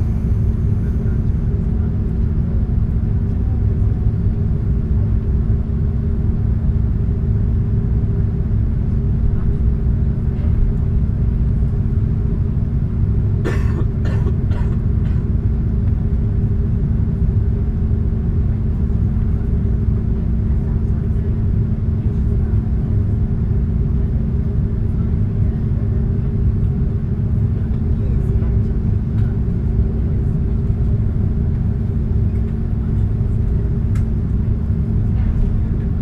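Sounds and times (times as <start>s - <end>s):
aircraft cabin rumble and hum: 0.0s - 36.0s.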